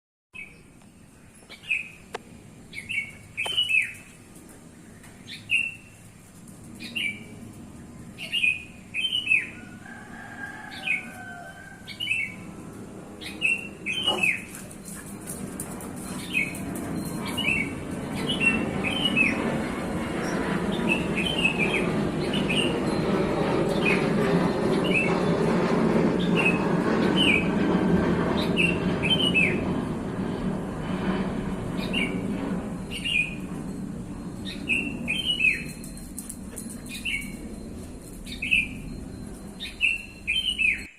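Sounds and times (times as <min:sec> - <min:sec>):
small birds chirping: 0:00.4 - 0:09.6, 0:13.2 - 0:19.4, 0:38.2 - 0:40.9
airplane rumble: 0:00.4 - 0:40.9.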